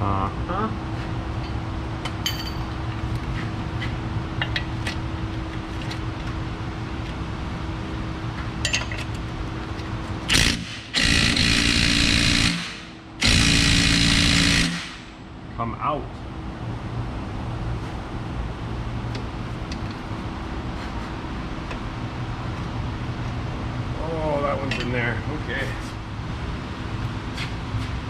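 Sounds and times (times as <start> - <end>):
impact wrench hammering: 10.3 - 15.2.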